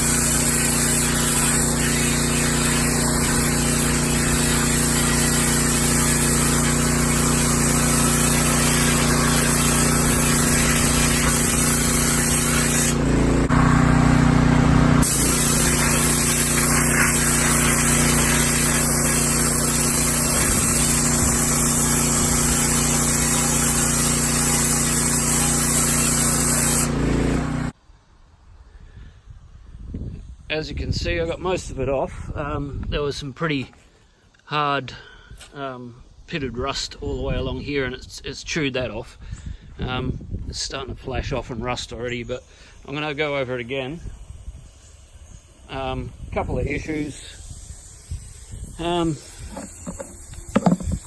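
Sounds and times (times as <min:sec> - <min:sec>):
water and sand spraying hiss: 0:00.0 - 0:14.1, 0:15.0 - 0:27.8, 0:40.7 - 0:51.0
pressure washer pump hum: 0:00.0 - 0:27.8, 0:42.4 - 0:51.0.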